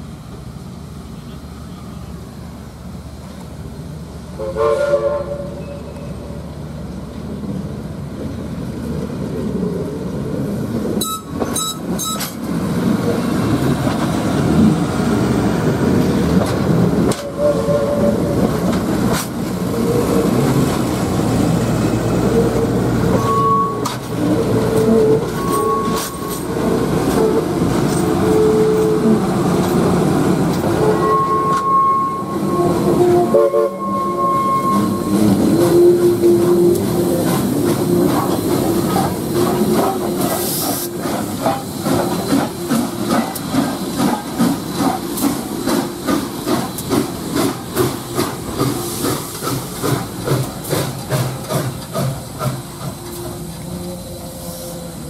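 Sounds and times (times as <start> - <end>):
train wheels rumbling: 0.0 - 55.0
wheel squeals: 23.1 - 26.5, 30.8 - 36.6.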